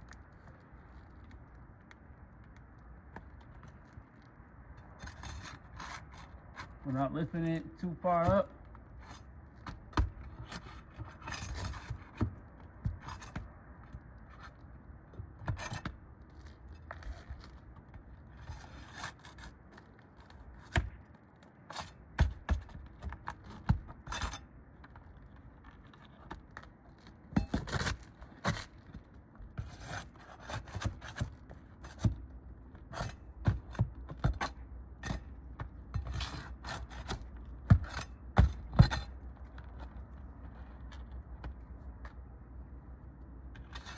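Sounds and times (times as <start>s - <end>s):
metal tool scraping roof shingles: 4.9s - 13.5s, 15.4s - 21.0s, 21.6s - 24.5s, 27.0s - 28.9s, 29.6s - 39.9s, 43.6s - 43.9s.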